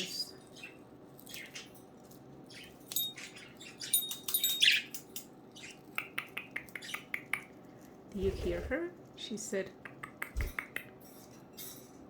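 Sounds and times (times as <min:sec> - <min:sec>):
budgerigars chirping: 0:02.5 - 0:07.3.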